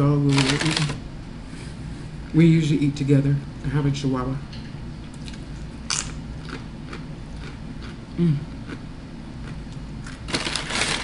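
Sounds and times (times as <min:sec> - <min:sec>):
person humming mm: 0:08.2 - 0:08.5
tortilla chip crunching: 0:09.5 - 0:11.0.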